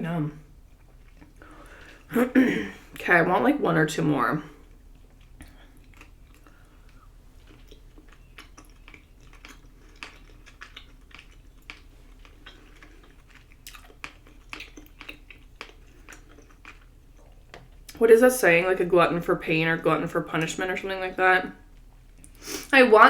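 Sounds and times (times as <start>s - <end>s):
person chewing with wet mouth clicks: 0.7s - 2.1s, 4.6s - 18.0s.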